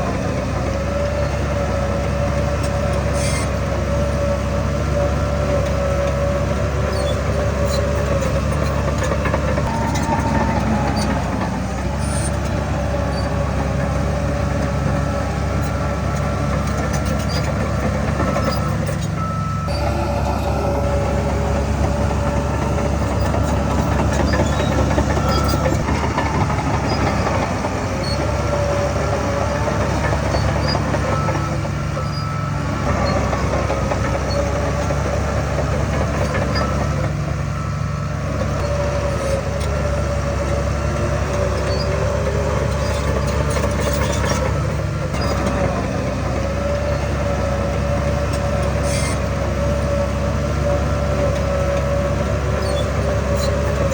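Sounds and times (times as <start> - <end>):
diesel engine droning: 0.0 - 53.9
machinery squealing whine: 0.0 - 53.9.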